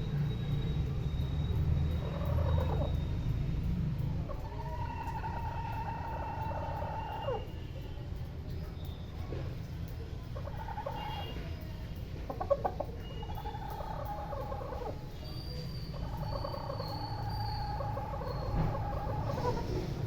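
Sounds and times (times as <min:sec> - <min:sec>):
hen clucking and calling: 0:02.0 - 0:03.0, 0:04.2 - 0:07.5, 0:10.4 - 0:11.3, 0:12.3 - 0:15.1, 0:15.9 - 0:20.0.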